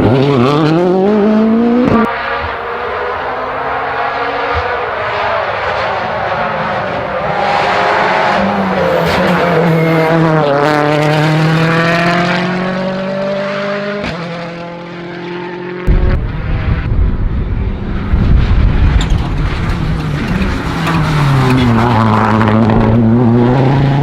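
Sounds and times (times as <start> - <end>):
rally car engine accelerating: 0.0 - 24.0
loud low rumble: 15.9 - 20.0.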